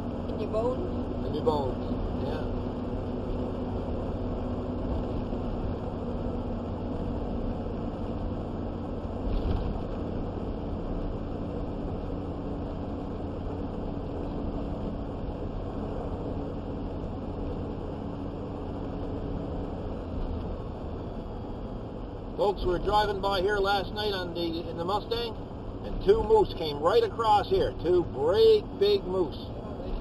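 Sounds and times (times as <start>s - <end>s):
road and engine noise: 0.0s - 30.0s.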